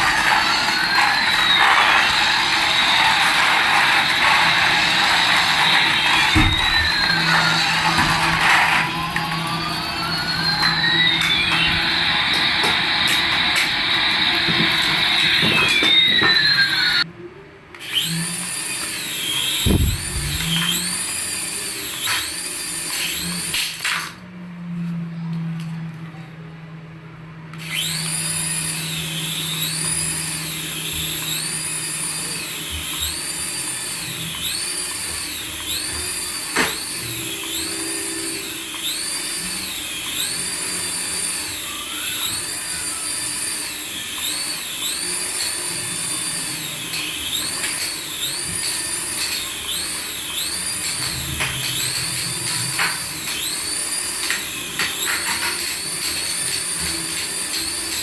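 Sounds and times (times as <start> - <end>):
toy siren-like tone: 0.0 - 17.0, 33.3 - 46.5.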